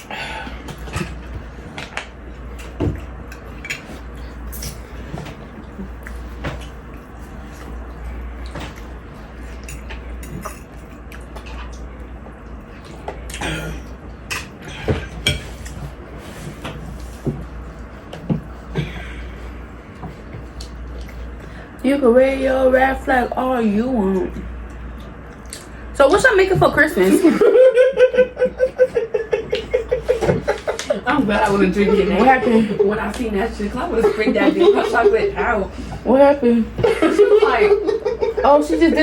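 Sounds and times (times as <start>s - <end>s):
utensils clinking against bowls: 9.6s - 11.7s.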